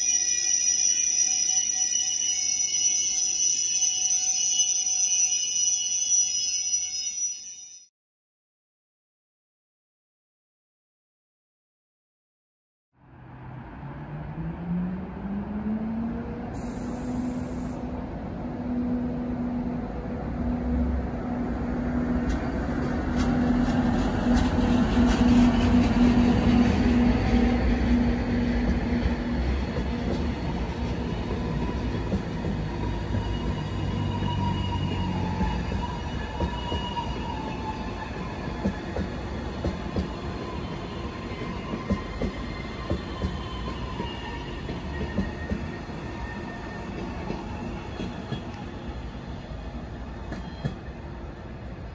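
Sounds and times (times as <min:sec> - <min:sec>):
train wheels clicking over rails: 0:22.2 - 0:33.7, 0:38.2 - 0:46.0.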